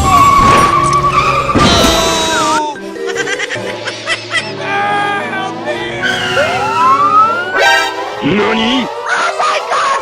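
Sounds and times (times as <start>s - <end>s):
background music: 0.1s - 10.0s
high wavering squeal: 5.8s - 8.0s.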